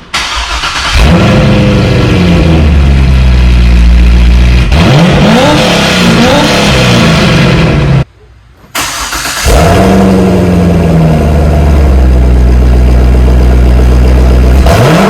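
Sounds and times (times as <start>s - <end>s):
car engine cranking: 0.0s - 2.1s, 8.7s - 10.7s
engine revving: 0.2s - 8.1s, 8.9s - 15.0s.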